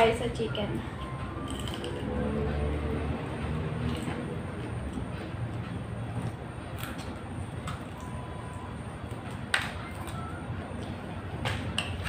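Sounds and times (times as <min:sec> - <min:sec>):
crunching fried chicken: 0:01.4 - 0:02.1.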